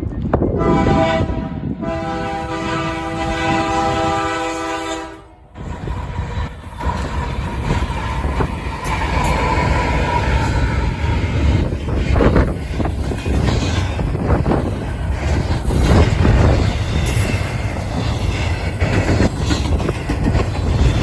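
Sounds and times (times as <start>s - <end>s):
freight train rolling past: 0.0s - 21.0s
locomotive air horn: 0.6s - 5.4s.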